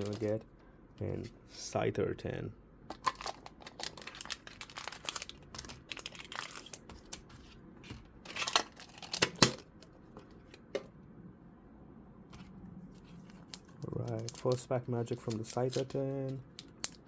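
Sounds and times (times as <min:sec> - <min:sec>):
packaging crinkling and tearing: 0:00.0 - 0:00.4, 0:03.0 - 0:07.4, 0:08.2 - 0:09.6, 0:13.0 - 0:17.0.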